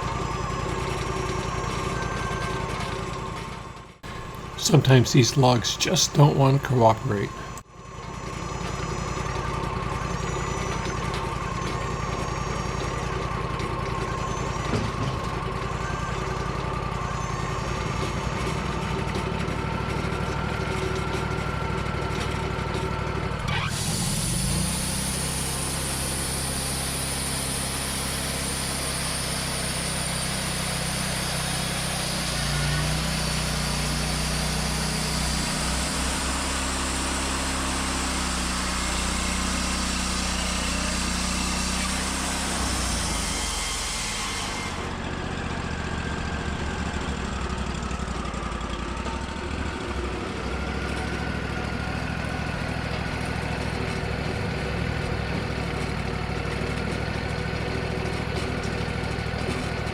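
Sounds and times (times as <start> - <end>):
sawmill engine running: 0.0 - 7.6, 8.4 - 59.9
saw blade cutting log: 34.9 - 44.9.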